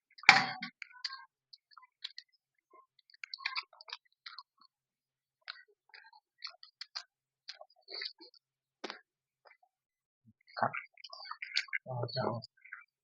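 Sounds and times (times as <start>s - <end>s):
person chewing with wet smacks: 0.8s - 4.8s, 5.4s - 9.6s.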